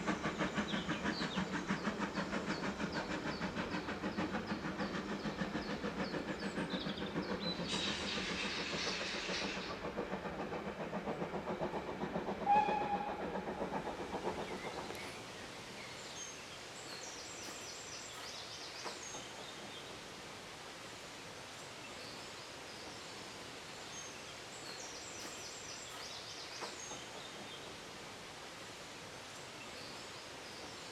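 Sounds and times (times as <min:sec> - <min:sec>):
steam engine rhythmic beat: 0:00.0 - 0:15.2
steam hiss: 0:00.0 - 0:30.9.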